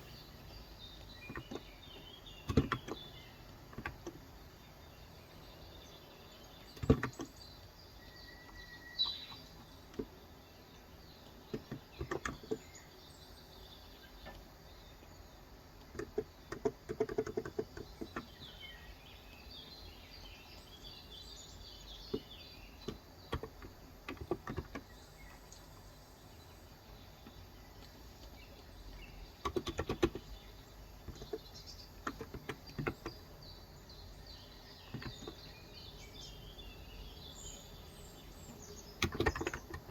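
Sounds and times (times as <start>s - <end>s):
faint birds chirping: 0.0s - 39.9s
typing on a keyboard: 15.9s - 18.3s, 22.9s - 24.9s, 29.4s - 30.3s, 32.0s - 33.2s, 39.0s - 39.9s.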